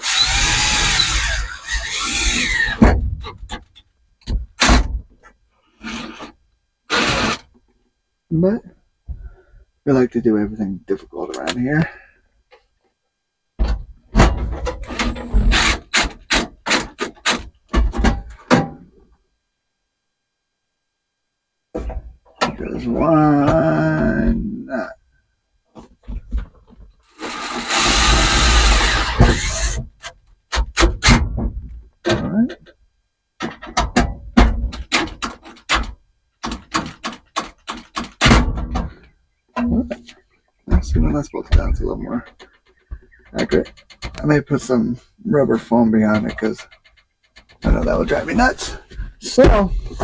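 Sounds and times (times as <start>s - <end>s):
sharp knocks and bangs of tools: 33.4s - 40.1s.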